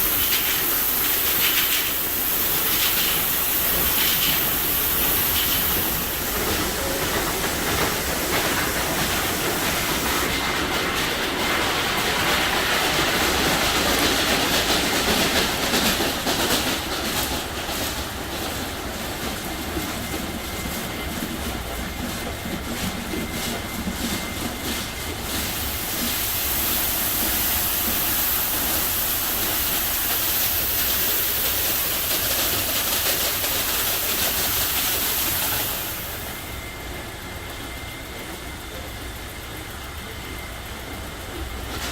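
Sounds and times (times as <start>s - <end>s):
car wash water spray hiss: 0.0s - 10.5s, 25.2s - 36.6s.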